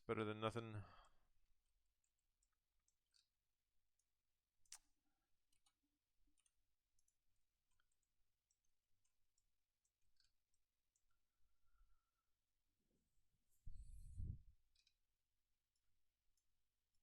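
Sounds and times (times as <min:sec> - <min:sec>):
faint scattered clicks: 0:01.8 - 0:11.8, 0:14.7 - 0:15.1.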